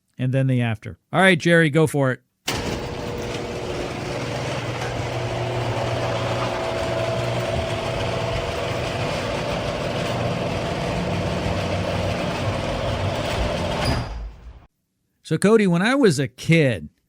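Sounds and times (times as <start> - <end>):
rollers grinding in tracks: 2.5 - 14.0
garage door opener drone: 2.5 - 14.7.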